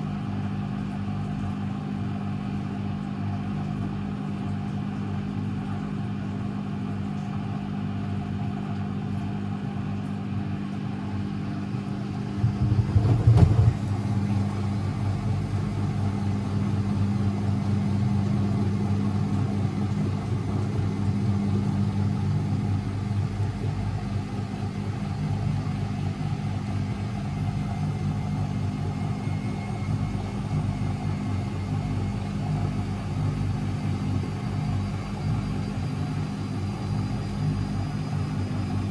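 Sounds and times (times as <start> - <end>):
washing machine motor drone: 0.0 - 38.9
washing machine knocking: 11.1 - 34.9.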